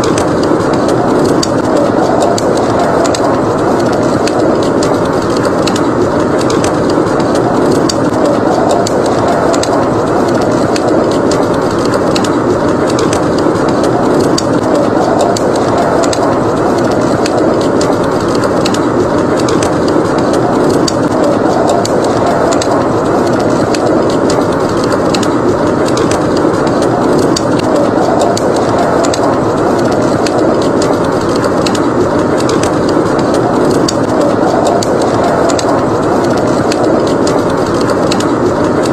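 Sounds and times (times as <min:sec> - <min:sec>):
blizzard wind roaring: 0:00.0 - 0:38.9
wood fire crackling and popping: 0:00.0 - 0:38.9.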